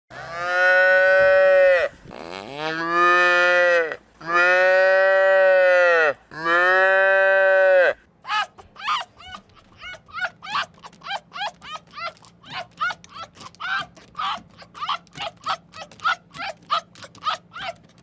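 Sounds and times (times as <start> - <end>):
short high animal calls: 8.3 - 18.0.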